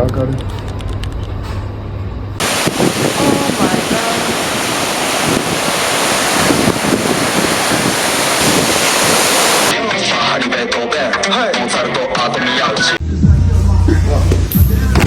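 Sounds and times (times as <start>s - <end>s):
ocean surf: 2.4s - 9.7s
wind buffeting microphone: 2.4s - 9.7s
faint voices: 2.6s - 4.6s.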